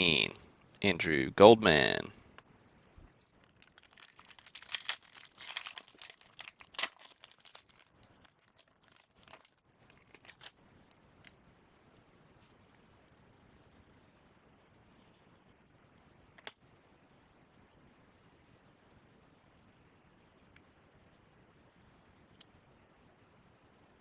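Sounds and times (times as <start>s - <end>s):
wrapper tearing and crinkling: 3.3s - 10.5s.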